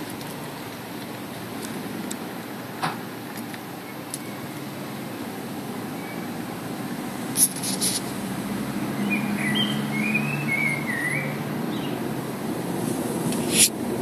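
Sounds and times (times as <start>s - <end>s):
wind: 0.0s - 14.0s
bird chirping: 8.9s - 12.0s.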